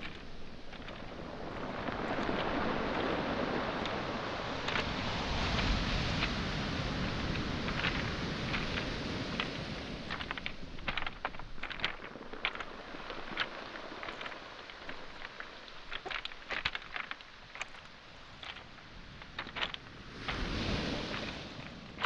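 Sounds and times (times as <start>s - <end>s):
pebbles clacking together: 0.0s - 22.0s
wave washing on pebbles: 0.0s - 22.0s.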